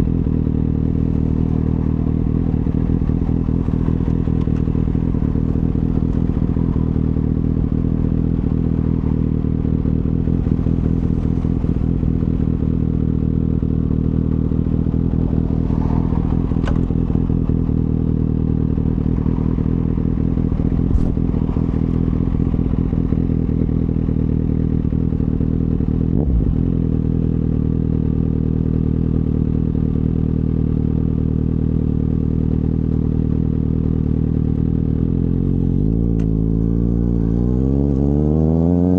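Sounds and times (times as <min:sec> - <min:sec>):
motorcycle engine cruising: 0:00.0 - 0:38.9
brief thump: 0:16.6 - 0:16.9, 0:20.9 - 0:21.2.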